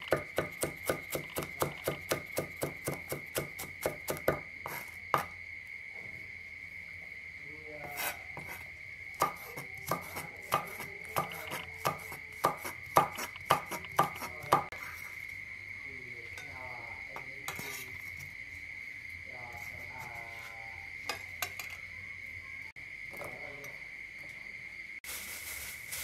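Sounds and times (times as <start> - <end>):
cleaver chopping on wooden board: 9.2 - 14.7.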